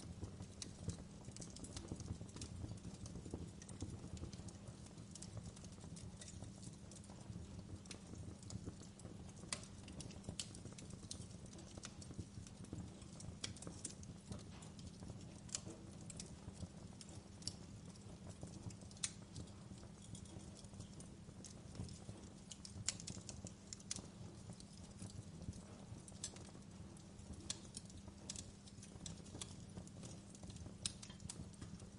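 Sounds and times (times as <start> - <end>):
fire crackling: 0.0 - 31.9.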